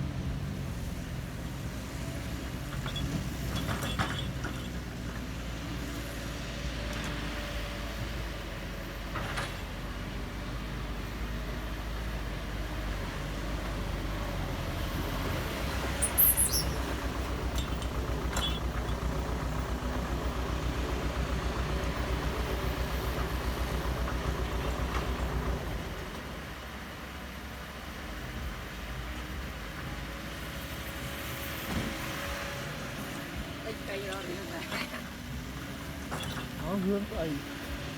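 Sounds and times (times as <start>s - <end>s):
heavy vehicle engine running: 0.0s - 37.9s
sharp high squeak: 16.0s - 17.0s, 18.4s - 18.7s.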